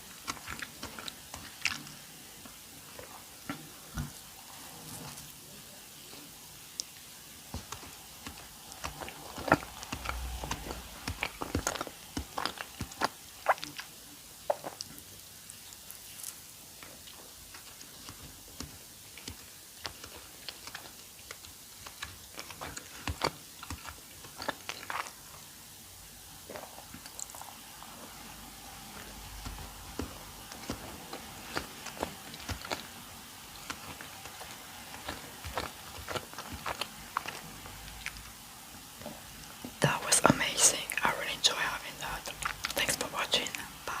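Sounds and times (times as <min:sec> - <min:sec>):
chewing with mouth clicks: 0:00.0 - 0:05.3, 0:06.7 - 0:25.7, 0:26.3 - 0:38.4, 0:39.0 - 0:44.0.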